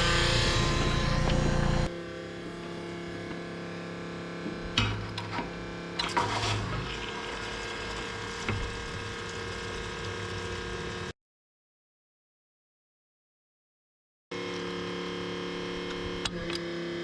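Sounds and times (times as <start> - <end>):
motor running: 0.0 - 11.1.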